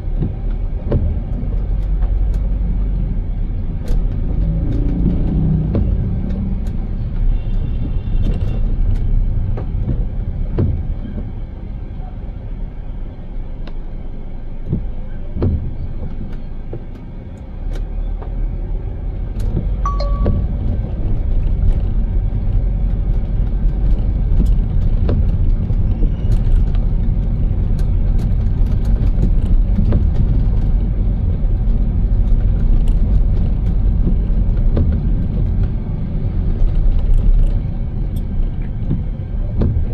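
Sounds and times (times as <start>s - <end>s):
car road rumble: 0.0s - 39.9s
short beep: 19.9s - 20.6s.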